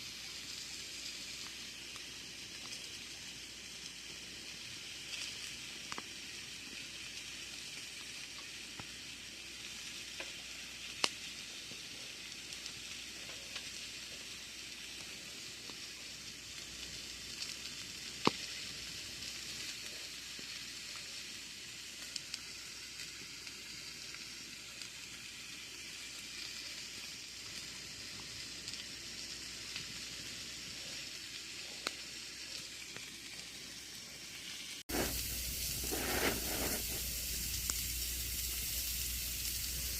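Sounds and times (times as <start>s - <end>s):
campfire hissing and crackling: 0.0s - 39.9s
sharp fire pops: 17.4s - 18.8s, 34.8s - 39.9s.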